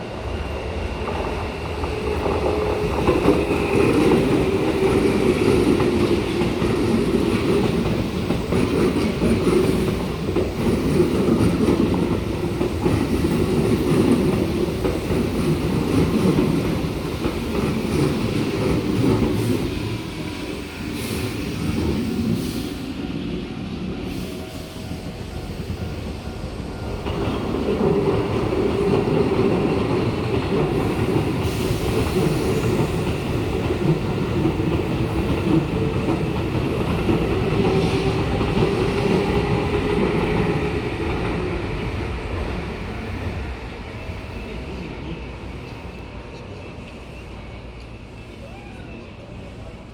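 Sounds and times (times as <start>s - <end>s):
electric train passing: 0.0s - 49.9s
train wheels on rails: 0.0s - 49.9s.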